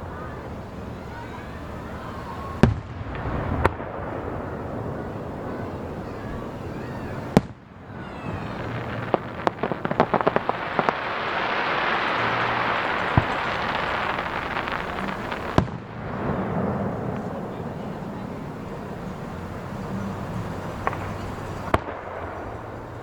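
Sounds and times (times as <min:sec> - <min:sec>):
rapid firework pops and crackling: 0:02.6 - 0:23.0
firework shell bursts: 0:06.2 - 0:17.4.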